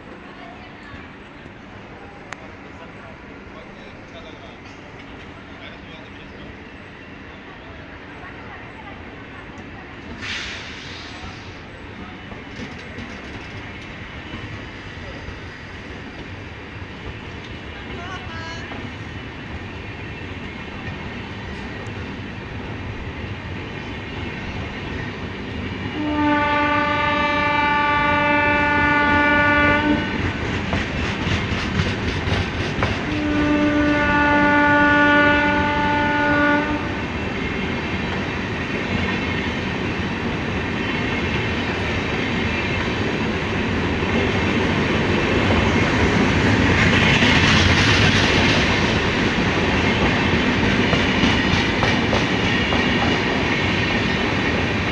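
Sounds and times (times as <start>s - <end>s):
train wheels clacking on rails: 9.6s - 27.0s, 29.0s - 34.6s, 36.9s - 54.9s
locomotive horn blasts: 26.0s - 30.2s, 33.1s - 37.0s.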